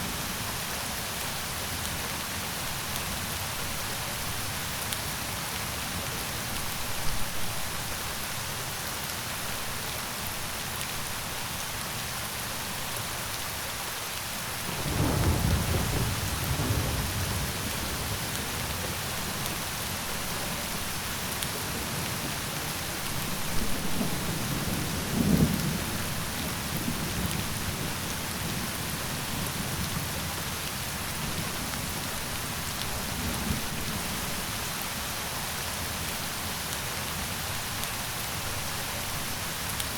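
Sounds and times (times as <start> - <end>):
steady rain falling: 0.0 - 39.9
thunder rumbling: 14.8 - 18.9.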